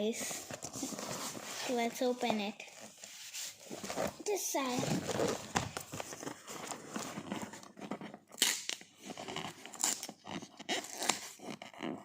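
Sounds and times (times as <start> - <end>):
wrapping paper rustling: 0.2 - 8.3.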